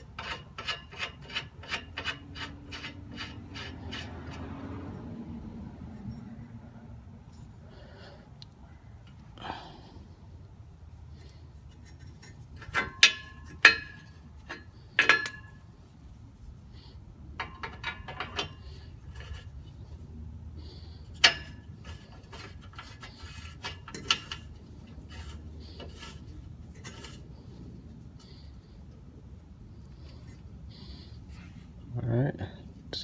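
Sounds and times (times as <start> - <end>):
small clicks and rubbing: 21.1 - 29.0.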